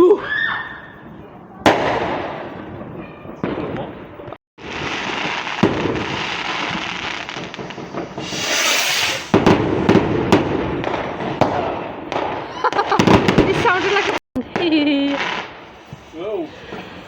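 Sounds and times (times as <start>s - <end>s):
firework bangs: 1.0s - 17.0s
fireworks crackling: 1.0s - 17.0s
firework hiss: 4.6s - 11.2s, 13.5s - 17.0s.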